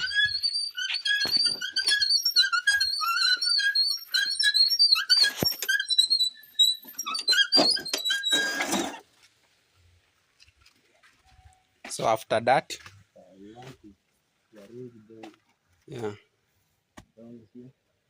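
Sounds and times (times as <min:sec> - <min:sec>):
scraping rattle: 0:00.0 - 0:09.1
wheelbarrow wheel squeaking: 0:00.0 - 0:09.2.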